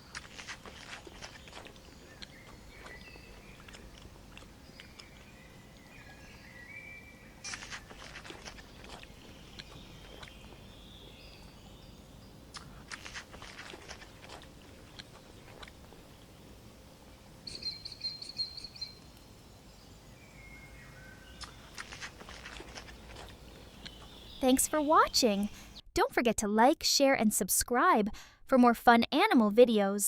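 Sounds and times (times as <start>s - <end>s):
giraffe chewing and crunching: 0.0s - 17.8s, 21.0s - 25.8s
birds chirping: 0.0s - 25.8s.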